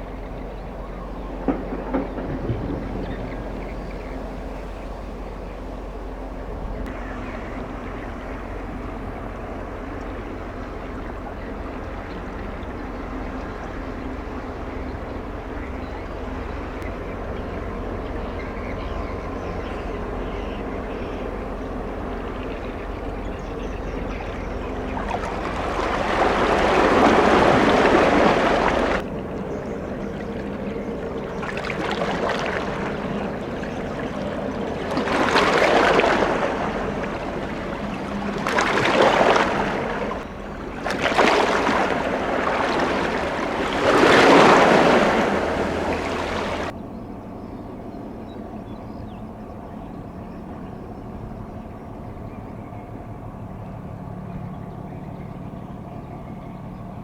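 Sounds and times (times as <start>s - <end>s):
ship hum: 0.0s - 57.0s
rushing water-like noise: 24.6s - 29.4s, 30.0s - 46.7s.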